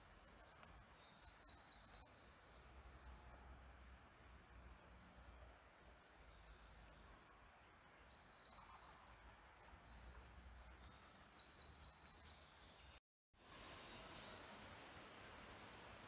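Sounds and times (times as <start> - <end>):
songbird trills: 0.0 - 3.5, 5.0 - 13.0
background hiss: 12.8 - 16.0.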